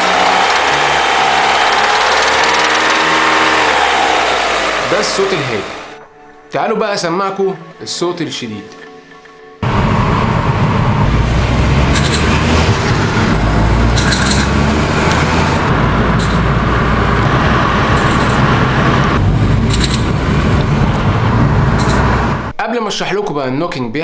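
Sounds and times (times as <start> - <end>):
car engine running: 0.0 - 6.0, 9.6 - 22.5
engine knocking bursts: 0.0 - 6.0, 11.1 - 22.5
road noise: 0.0 - 6.0, 9.6 - 22.5.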